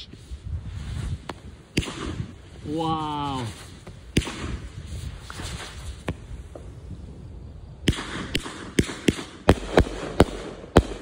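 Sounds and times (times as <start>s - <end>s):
firework bangs: 0.6s - 11.0s.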